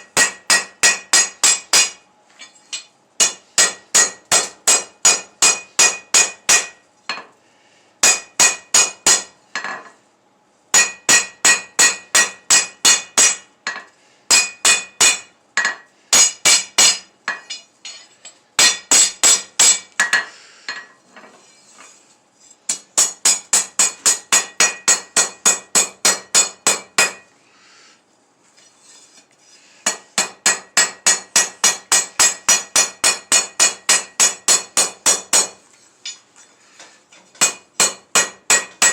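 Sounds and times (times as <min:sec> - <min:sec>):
hammer striking steel on anvil: 0:00.0 - 0:02.0, 0:02.8 - 0:07.3, 0:08.0 - 0:09.9, 0:10.7 - 0:20.9, 0:22.7 - 0:27.3, 0:29.9 - 0:36.2, 0:37.4 - 0:38.9.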